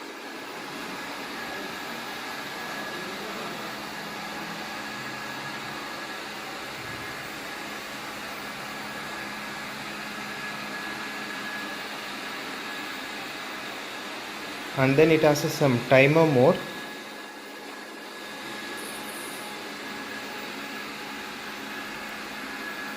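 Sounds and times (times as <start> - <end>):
robot vacuum cleaner whirring: 0.0 - 22.9.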